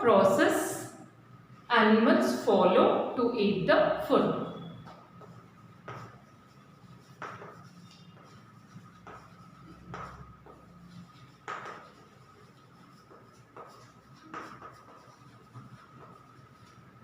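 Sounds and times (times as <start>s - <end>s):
faint high whine: 3.9s - 6.9s
pen scratching and tapping: 5.2s - 16.9s.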